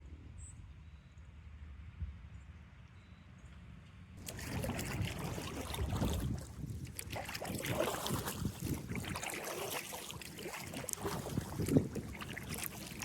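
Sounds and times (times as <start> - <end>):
paddle strokes splashing water: 4.2 - 13.0
wind rumbling on microphone: 4.2 - 13.0.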